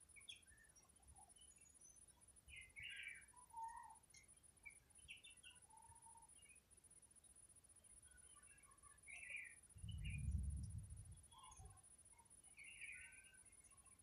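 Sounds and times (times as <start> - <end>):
bird chirps and calls: 0.1 - 6.6, 8.0 - 14.0.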